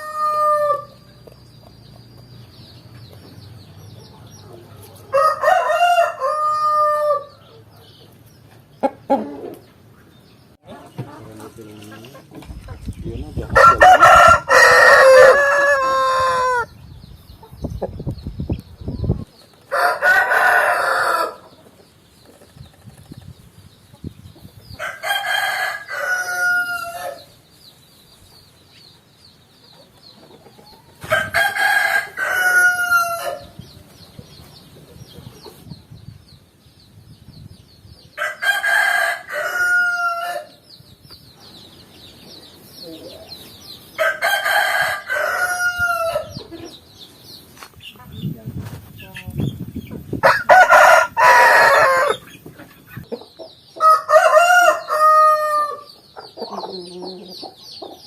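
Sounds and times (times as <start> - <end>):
rooster crowing: 0.0 - 1.1, 5.1 - 7.4, 13.6 - 16.7, 19.7 - 21.4, 24.8 - 27.3, 31.0 - 33.6, 38.2 - 40.6, 44.0 - 46.3, 50.2 - 52.2, 53.8 - 55.9.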